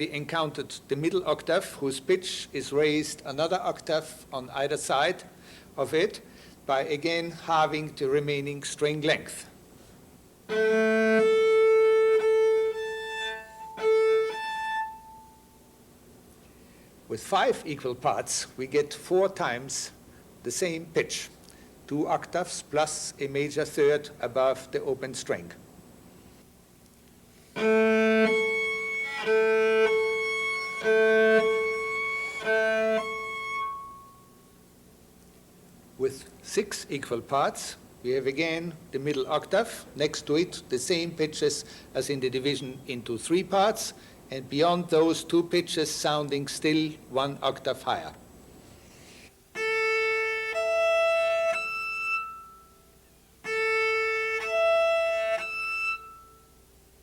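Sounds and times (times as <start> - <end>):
bowed cello harmonics: 10.5 - 15.4, 27.6 - 34.2, 49.6 - 56.6.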